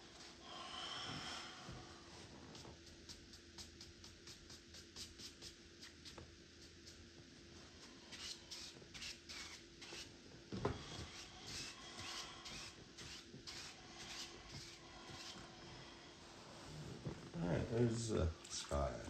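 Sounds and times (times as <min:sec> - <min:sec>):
paintbrush rubbing on canvas: 0:02.1 - 0:07.1, 0:07.7 - 0:10.2, 0:10.8 - 0:17.2.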